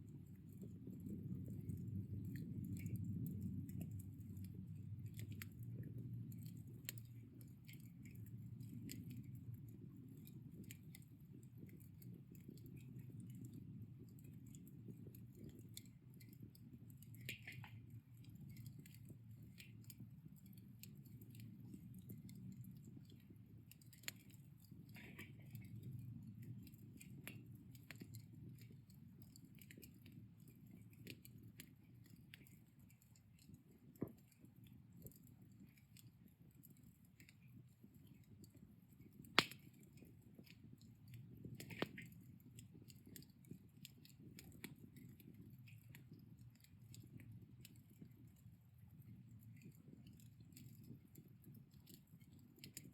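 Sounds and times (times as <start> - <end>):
fire crackles and pops: 0.0 - 52.9.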